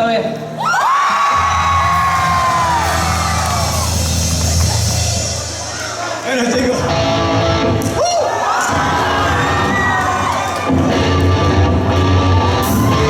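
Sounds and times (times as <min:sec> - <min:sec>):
live rock band playing: 0:01.4 - 0:08.0, 0:10.6 - 0:13.0.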